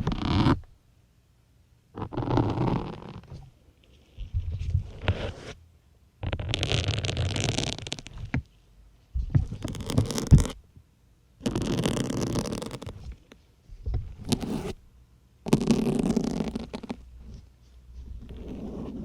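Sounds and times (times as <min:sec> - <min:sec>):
needle pushed into foam sponge: 0:04.2 - 0:05.6, 0:13.8 - 0:14.8, 0:15.5 - 0:19.0.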